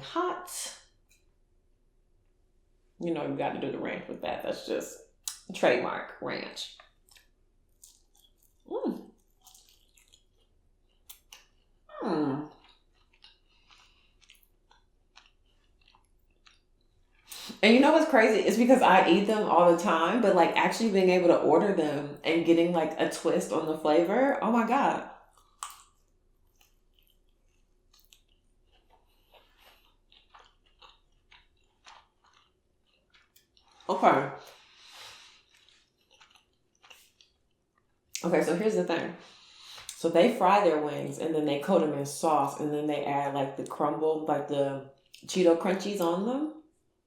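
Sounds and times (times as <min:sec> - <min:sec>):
crisp crunching while eating: 0:06.7 - 0:11.8, 0:12.5 - 0:17.3, 0:25.4 - 0:37.6.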